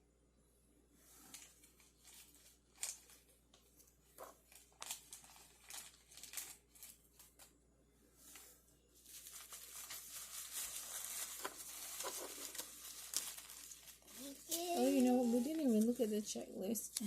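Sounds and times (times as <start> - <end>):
plastic packaging crinkling: 1.4 - 7.4, 9.0 - 17.0.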